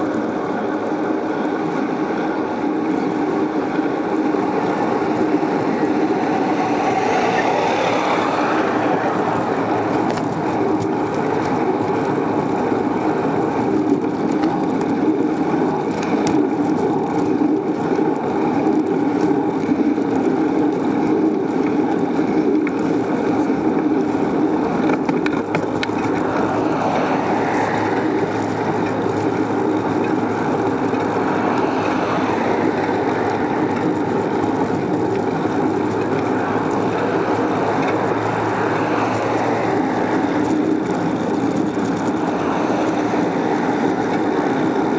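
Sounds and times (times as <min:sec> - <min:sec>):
bicycle road noise: 0:00.0 - 0:44.9
wind buffeting: 0:00.0 - 0:44.9.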